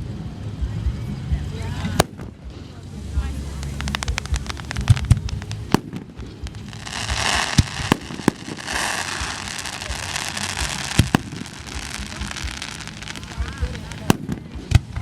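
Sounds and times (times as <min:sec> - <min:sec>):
crackling hiss of fireworks: 0:00.0 - 0:15.0
firework shells bursting: 0:03.5 - 0:15.0.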